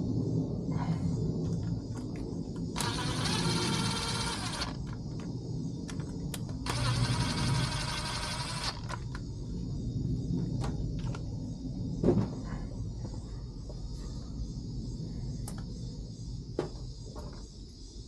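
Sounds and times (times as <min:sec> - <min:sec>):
low steady background hum: 0:00.0 - 0:18.0
small electric power tool running: 0:02.8 - 0:05.0, 0:06.6 - 0:09.1.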